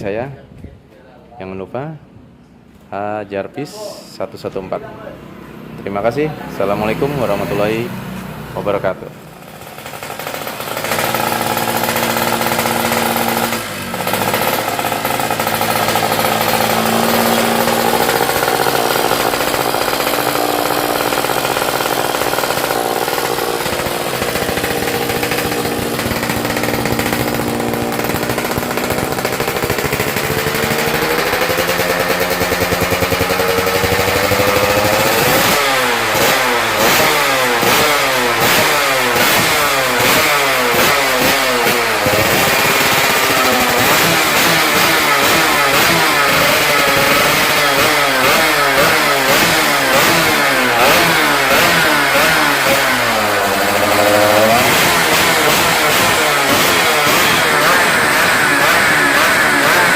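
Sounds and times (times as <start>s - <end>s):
two-stroke motorcycle engine revving: 5.3s - 59.9s.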